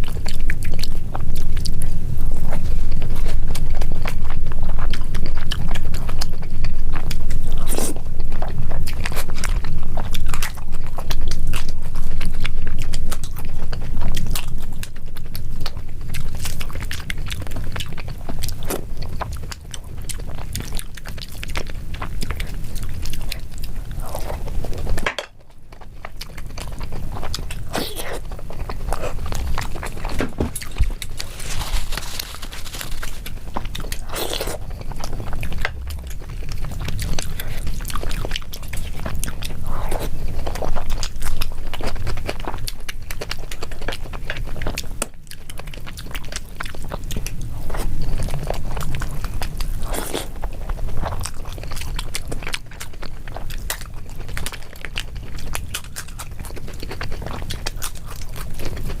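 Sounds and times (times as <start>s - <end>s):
person chewing food: 0.0s - 59.0s
low rumble: 28.3s - 41.0s.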